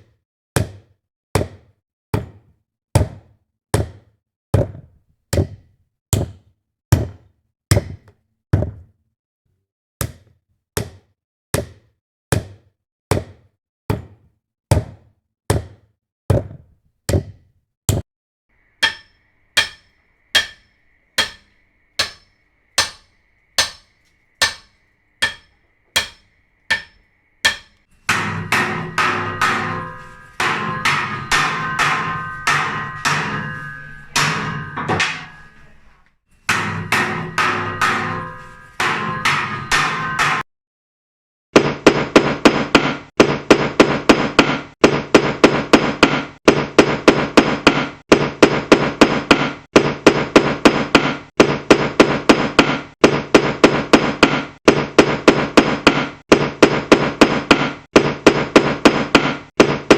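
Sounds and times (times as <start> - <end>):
ringing hammer blows: 18.6 - 35.7, 36.5 - 40.4.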